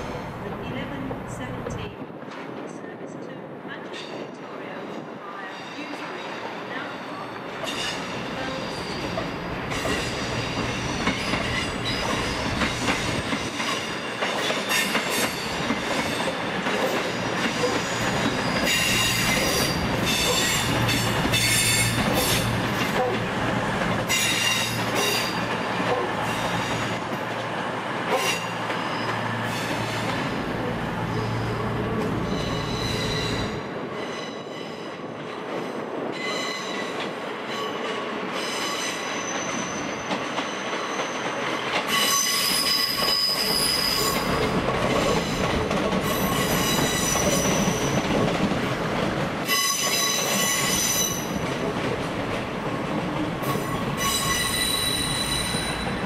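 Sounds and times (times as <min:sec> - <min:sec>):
train wheels squealing: 0:05.4 - 0:16.4, 0:17.0 - 0:22.5, 0:24.1 - 0:25.5, 0:28.1 - 0:30.1, 0:31.0 - 0:35.0, 0:36.2 - 0:48.1, 0:49.5 - 0:51.4, 0:53.5 - 0:56.0.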